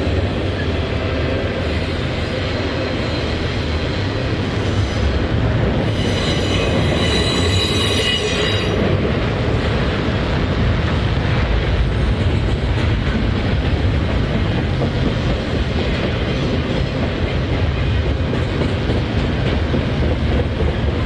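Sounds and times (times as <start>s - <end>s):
train wheels rumbling on rail: 0.0s - 21.0s
high-pitched wheel squeal: 5.9s - 8.8s.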